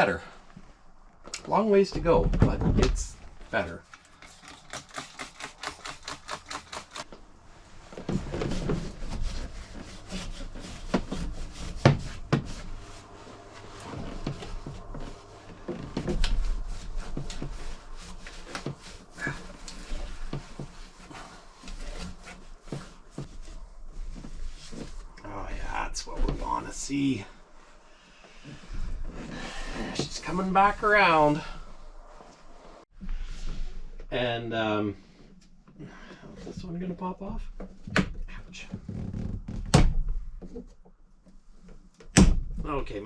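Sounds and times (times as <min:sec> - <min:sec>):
scrubbing strokes: 0:03.5 - 0:33.4.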